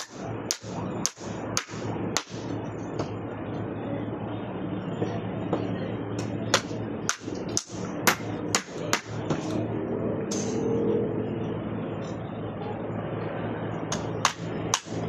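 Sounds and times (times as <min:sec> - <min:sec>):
hammer strikes: 0:00.0 - 0:03.1, 0:06.5 - 0:09.6, 0:13.9 - 0:15.0
low background hum: 0:00.0 - 0:15.0.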